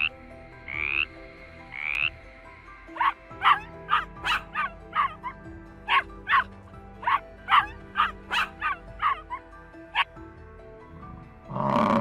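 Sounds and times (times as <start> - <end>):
soft background music: 0.0 - 12.0
dog barking in sharp yaps: 3.0 - 5.2, 5.9 - 9.3.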